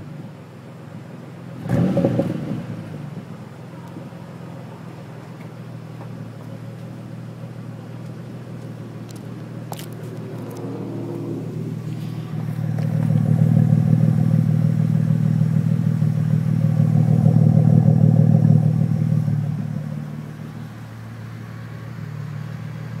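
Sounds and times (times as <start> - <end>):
deep car exhaust note: 10.7 - 21.0.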